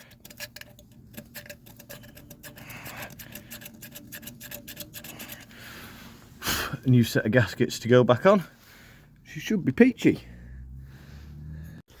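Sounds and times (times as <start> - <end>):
knife blade scraping gasket: 0.0 - 5.6.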